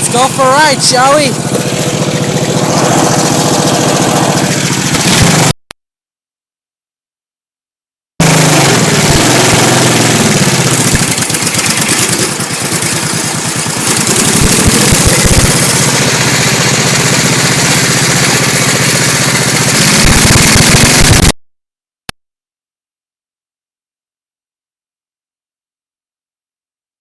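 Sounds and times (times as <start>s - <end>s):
lawnmower engine running loud: 0.0s - 5.6s, 8.2s - 21.4s.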